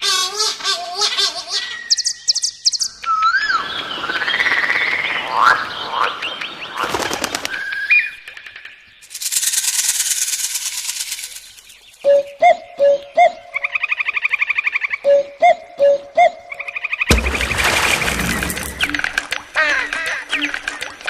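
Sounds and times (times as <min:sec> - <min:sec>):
whistled bird call: 0:01.5 - 0:04.5, 0:12.0 - 0:17.1
high buzzing bird rattle: 0:08.3 - 0:12.0.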